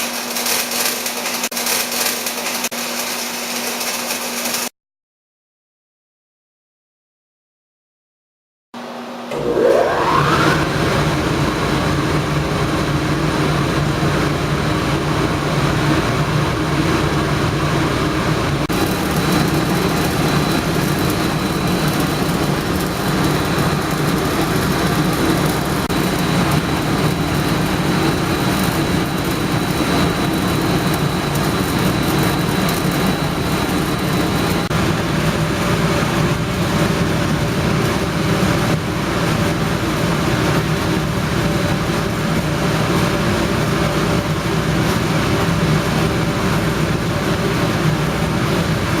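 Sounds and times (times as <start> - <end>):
machinery humming: 9.3 - 36.0.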